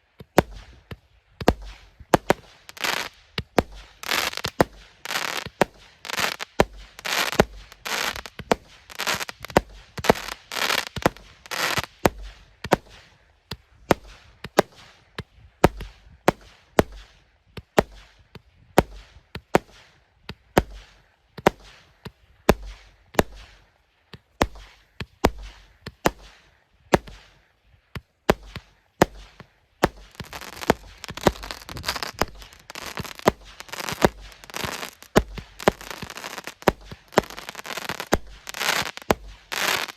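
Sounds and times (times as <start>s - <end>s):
firework bangs with low thumps: 0.1s - 39.9s
firework crackling: 0.4s - 13.2s, 28.3s - 39.9s.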